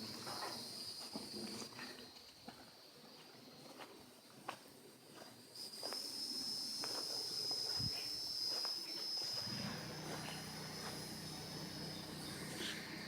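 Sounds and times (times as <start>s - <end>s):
cicada buzzing: 0.0s - 1.7s, 5.6s - 13.0s.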